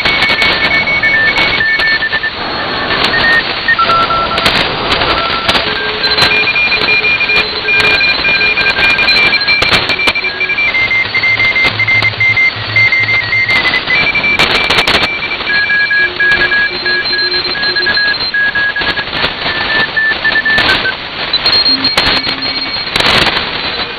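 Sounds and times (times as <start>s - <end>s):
morse code signals: 0.0s - 23.9s
shortwave receiver hiss: 0.0s - 23.9s
static crackles: 0.0s - 23.9s.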